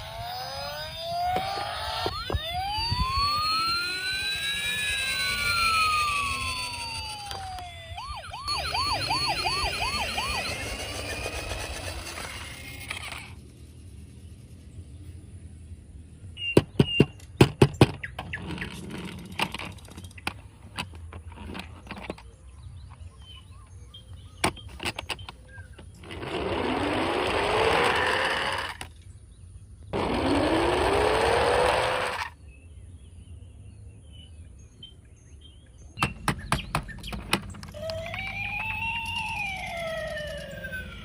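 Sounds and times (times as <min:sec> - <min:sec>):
toy car whirring: 0:00.0 - 0:14.4, 0:18.1 - 0:23.1, 0:24.4 - 0:29.0, 0:29.9 - 0:32.4, 0:36.0 - 0:41.0
plastic toy cars clattering: 0:17.2 - 0:22.4, 0:24.4 - 0:29.0.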